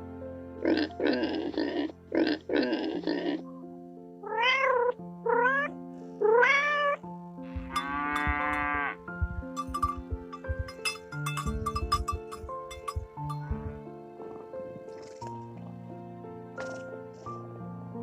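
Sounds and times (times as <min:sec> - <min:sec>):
background music: 0:00.0 - 0:18.0
animal making rough calls: 0:00.6 - 0:03.5
cat meowing: 0:04.2 - 0:07.0.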